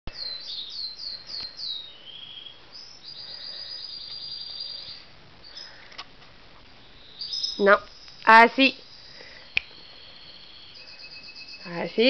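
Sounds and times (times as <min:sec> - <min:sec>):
bird singing chirps and trill: 0:00.1 - 0:05.8, 0:06.9 - 0:12.0.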